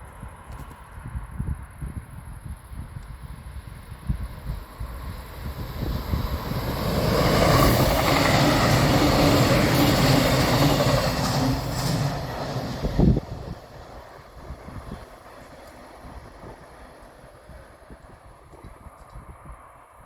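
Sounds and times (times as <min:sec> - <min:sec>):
train passing at speed: 0:03.3 - 0:20.0.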